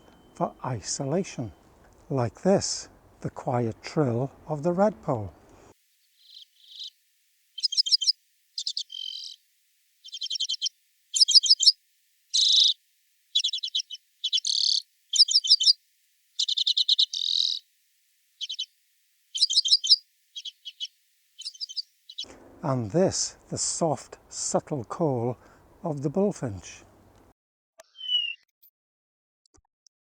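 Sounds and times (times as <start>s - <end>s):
bird trilling: 0.0s - 6.9s, 7.6s - 9.4s, 10.0s - 15.8s, 16.4s - 17.6s, 18.4s - 18.7s, 19.4s - 27.3s.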